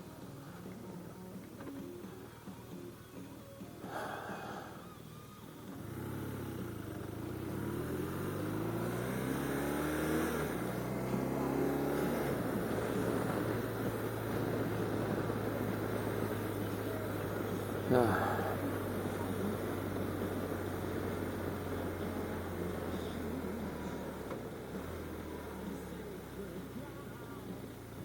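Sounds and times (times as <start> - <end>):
motorcycle engine pulling away: 5.7 - 28.0.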